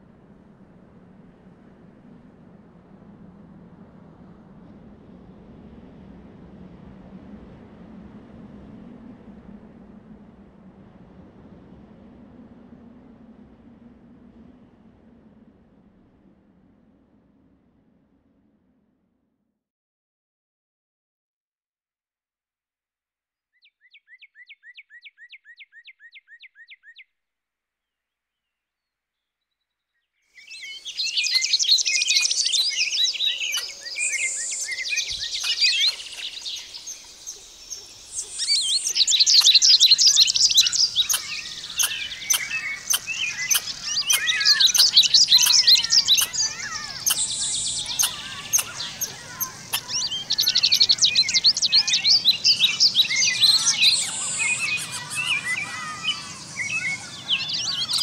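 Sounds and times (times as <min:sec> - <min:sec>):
flock of small birds chirping: 0:30.4 - 0:58.0.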